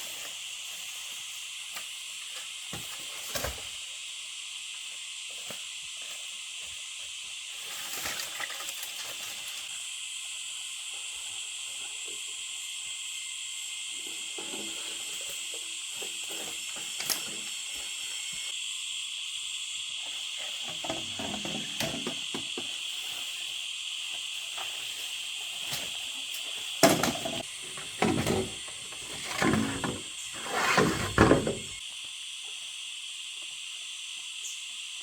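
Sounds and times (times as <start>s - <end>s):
high-pitched insect chorus: 0.0s - 35.0s
handling knocks and rustles: 20.4s - 23.5s, 24.3s - 31.8s.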